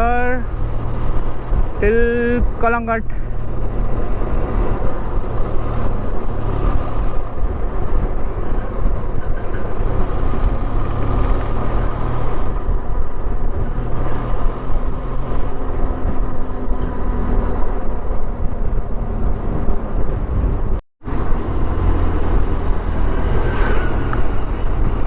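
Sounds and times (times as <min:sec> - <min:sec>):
motorcycle engine running: 0:00.0 - 0:25.0
road noise: 0:00.0 - 0:25.0
wind rush: 0:00.0 - 0:25.0.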